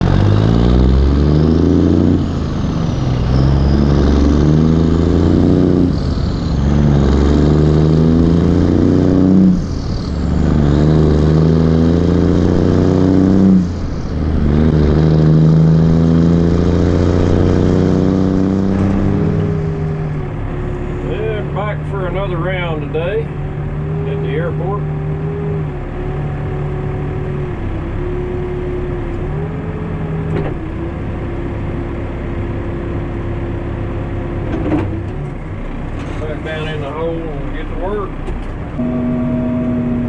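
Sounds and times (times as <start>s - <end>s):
diesel engine under load: 0.0s - 40.0s.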